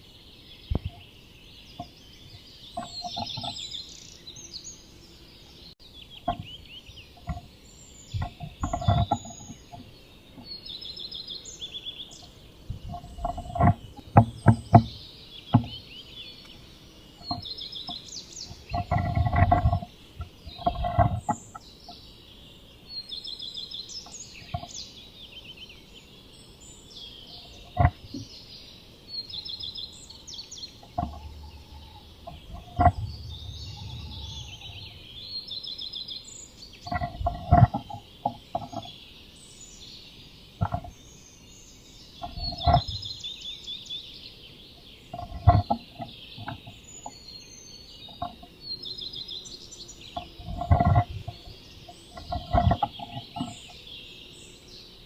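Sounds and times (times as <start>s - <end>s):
birds singing trills: 0.0s - 55.0s
knocks on wooden nest box: 6.2s - 6.6s, 8.1s - 10.5s, 12.7s - 15.8s, 30.8s - 35.0s, 36.8s - 38.9s, 40.6s - 41.0s.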